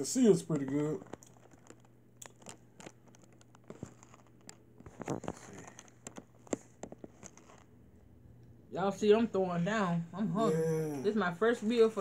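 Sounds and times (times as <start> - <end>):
paper wrapper crinkling: 0.1 - 7.8
person chewing: 0.6 - 7.8.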